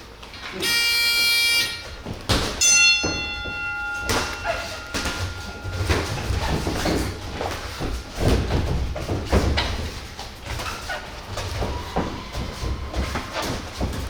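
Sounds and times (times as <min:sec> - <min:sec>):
electronic timer buzz: 0:00.6 - 0:01.9
ringing bell tone: 0:00.6 - 0:02.0, 0:02.6 - 0:08.2
thuds: 0:02.1 - 0:14.0.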